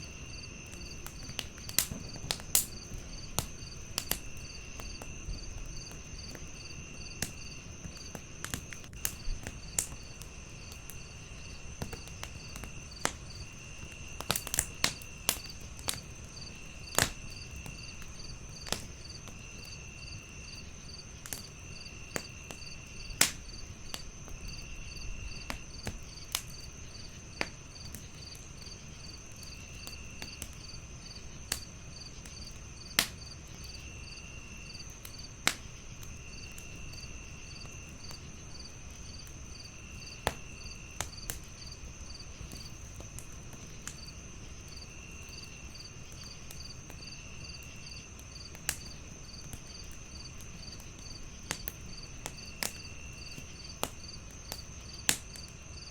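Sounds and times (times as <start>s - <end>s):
crickets pulsing chirp: 0.0s - 55.9s
wood fire crackling and popping: 0.0s - 55.9s
low insect trills: 43.8s - 55.9s
crickets high chirring: 44.0s - 55.9s.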